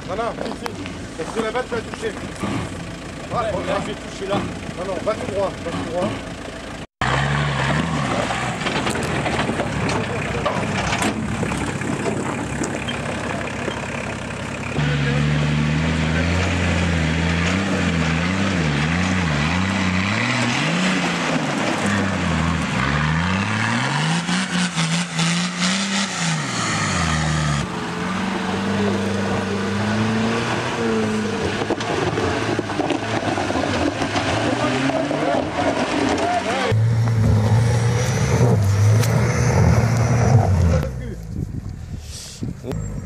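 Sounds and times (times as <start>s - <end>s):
engine running steadily: 0.0s - 6.9s
constant rough noise: 0.0s - 23.8s, 27.5s - 43.0s
off-road engine labouring: 0.0s - 43.0s.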